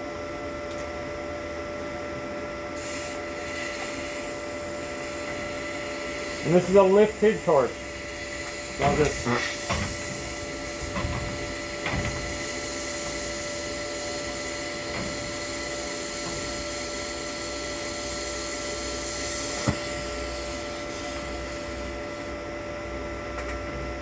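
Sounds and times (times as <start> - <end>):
welding arc hissing: 2.8 - 21.9.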